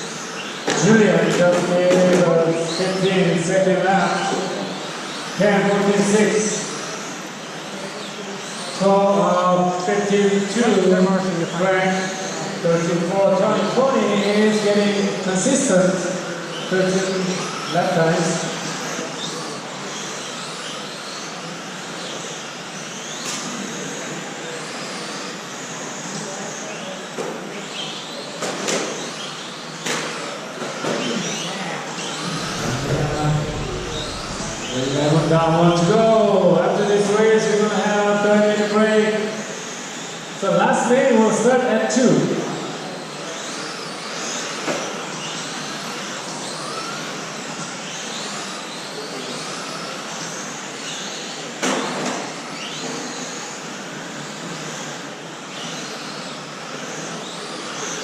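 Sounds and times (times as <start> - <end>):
rc truck motors whining: 4.2 - 9.2, 16.2 - 36.4, 42.7 - 58.0
electric motor whines: 31.9 - 36.4.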